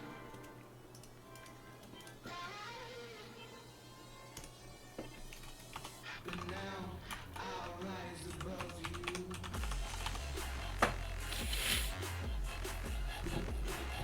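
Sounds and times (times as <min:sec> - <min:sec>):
keyboard typing clicks: 0:00.3 - 0:02.2
person speaking: 0:06.1 - 0:09.6.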